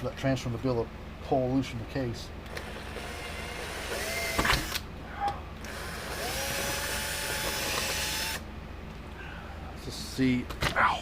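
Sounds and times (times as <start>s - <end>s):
electric drill drilling rivets: 2.5s - 4.9s, 5.6s - 8.4s.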